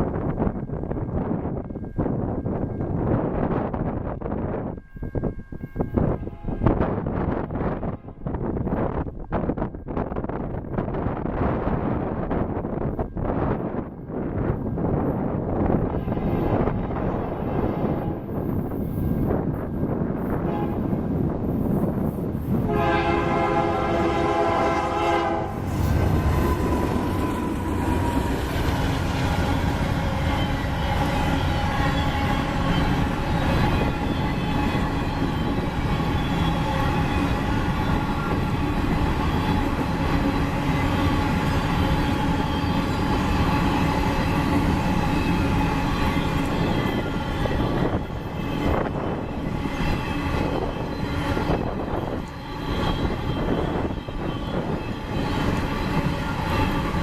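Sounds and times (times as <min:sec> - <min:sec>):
train engine running past: 0:00.0 - 0:57.0
locomotive horn blast: 0:20.3 - 0:21.0, 0:22.6 - 0:35.0.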